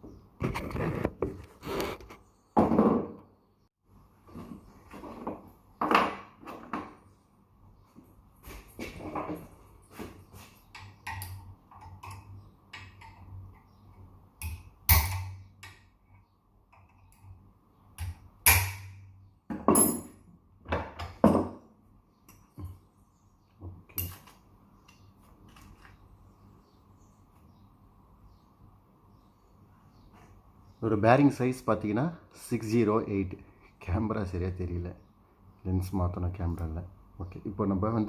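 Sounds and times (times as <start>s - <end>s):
metal tools clinking and knocking: 19.5s - 20.3s, 23.9s - 25.0s.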